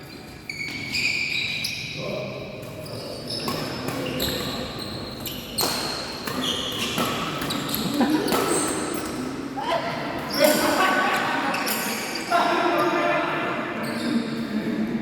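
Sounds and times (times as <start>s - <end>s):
shoes squeaking on court floor: 0.0s - 2.0s, 2.6s - 9.2s, 10.2s - 12.6s, 13.7s - 14.6s
racket hitting shuttlecock: 5.5s - 9.2s.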